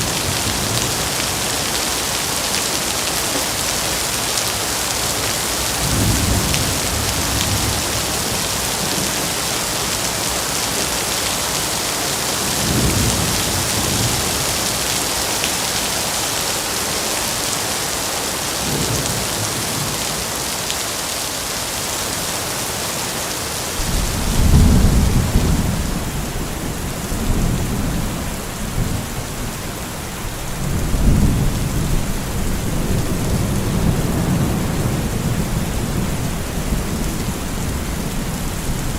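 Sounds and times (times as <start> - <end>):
heavy rain hissing: 0.0 - 38.9
thunder rumbling: 5.0 - 9.4, 23.7 - 38.9.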